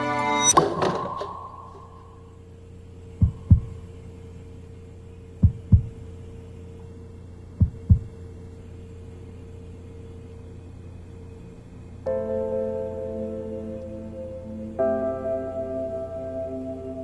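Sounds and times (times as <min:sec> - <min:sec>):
steady low hum: 0:00.5 - 0:17.0
heartbeat thumps: 0:03.2 - 0:03.8, 0:05.4 - 0:06.0, 0:07.6 - 0:08.2.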